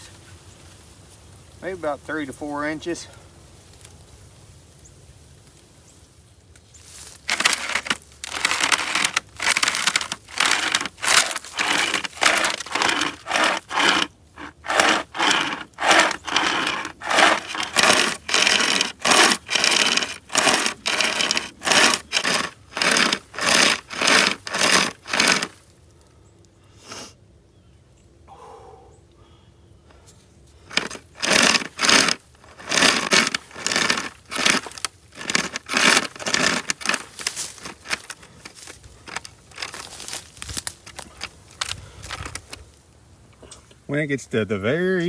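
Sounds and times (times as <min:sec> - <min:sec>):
hand chainsaw rasping through wood: 0:07.3 - 0:25.6, 0:30.7 - 0:40.2.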